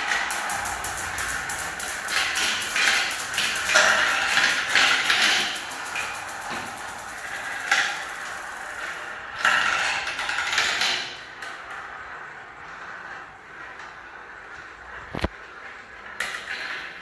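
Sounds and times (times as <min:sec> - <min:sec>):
marbles rolling down track: 0:00.0 - 0:10.1.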